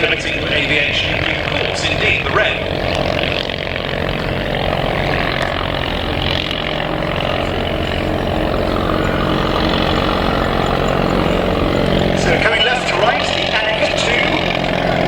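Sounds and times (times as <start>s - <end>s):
propeller aircraft engine running: 0.0s - 15.0s.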